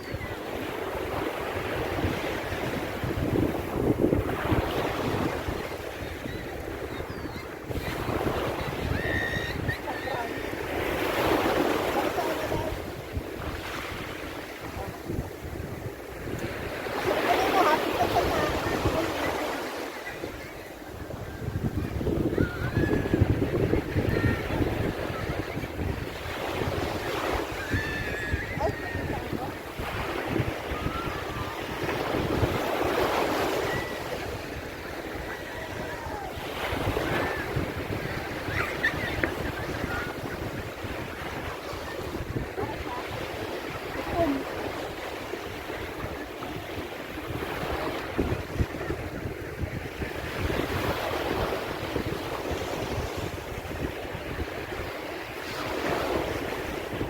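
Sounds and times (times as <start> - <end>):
sea waves breaking on beach: 0.0 - 57.0
wind buffeting microphone: 0.0 - 57.0.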